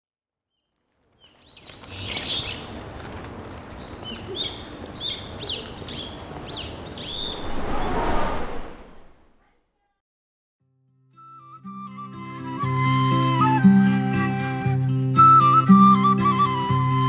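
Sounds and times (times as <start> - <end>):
small birds chirping: 0.5 - 2.8, 3.5 - 7.5.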